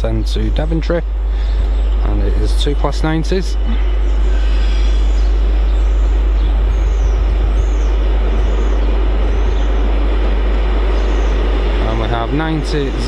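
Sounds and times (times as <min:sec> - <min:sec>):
freight train wheels rumbling on rails: 0:05.0 - 0:13.0.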